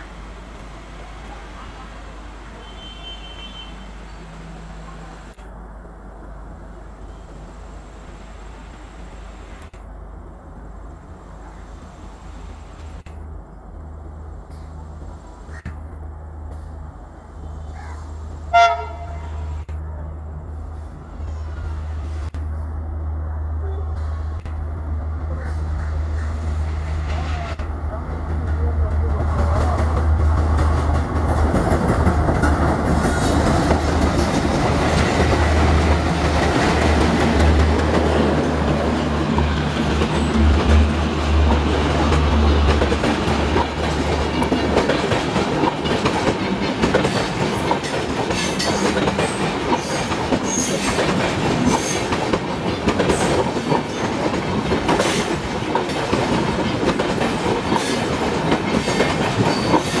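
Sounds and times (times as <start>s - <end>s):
diesel locomotive engines droning: 0.0s - 60.0s
coach wheels clattering over rail joints: 26.8s - 60.0s.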